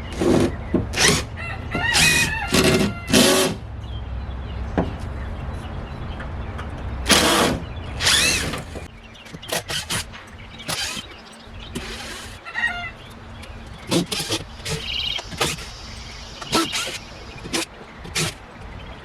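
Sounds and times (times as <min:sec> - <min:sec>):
chickens clucking and squawking: 0:01.0 - 0:03.4, 0:11.7 - 0:18.4.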